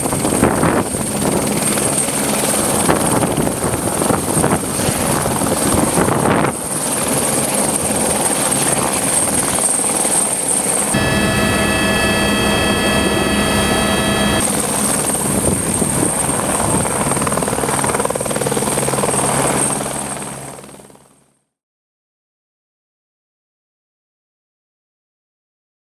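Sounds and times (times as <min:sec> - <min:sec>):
helicopter rotor and turbine: 0:00.0 - 0:21.4
steady whining tones: 0:10.9 - 0:15.0.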